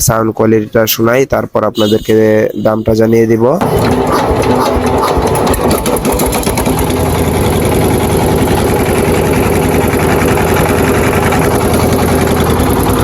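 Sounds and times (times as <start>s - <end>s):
deep hum: 3.6s - 13.0s
diesel engine running: 3.6s - 13.0s.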